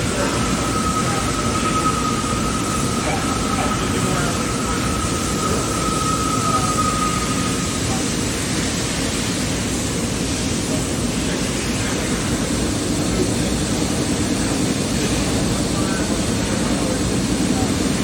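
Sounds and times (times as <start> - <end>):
faint high whistle: 0.0 - 8.2
machine shop rushing hum: 0.0 - 18.0.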